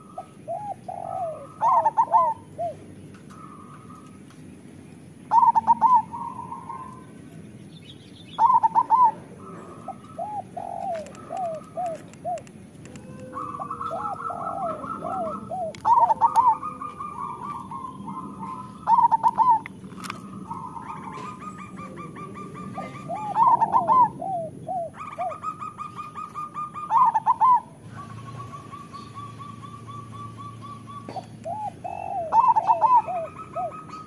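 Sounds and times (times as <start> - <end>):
doves cooing: 0.0 - 7.6, 8.2 - 34.0.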